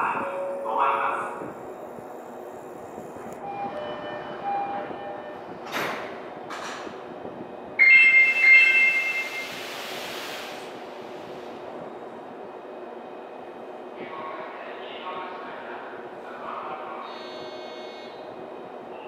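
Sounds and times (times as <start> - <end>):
electric train rumble: 0.0 - 19.0
loud hiss with ringing tones: 8.2 - 10.6.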